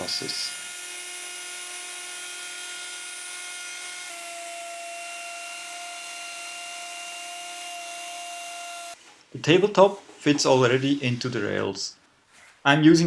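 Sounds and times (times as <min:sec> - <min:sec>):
table saw whining: 0:00.0 - 0:09.0.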